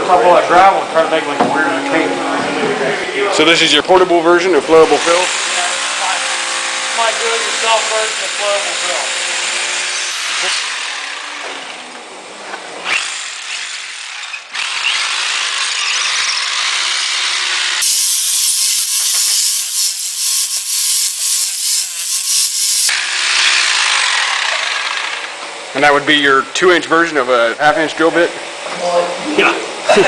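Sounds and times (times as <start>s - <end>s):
power drill running: 8.1s - 11.8s, 12.8s - 25.3s.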